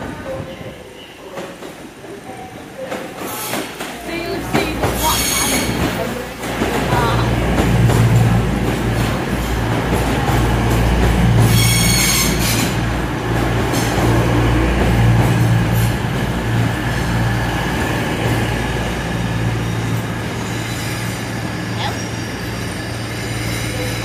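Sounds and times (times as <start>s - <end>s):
train running gear humming: 0.0s - 24.0s
high-pitched wheel squeal: 11.5s - 12.7s.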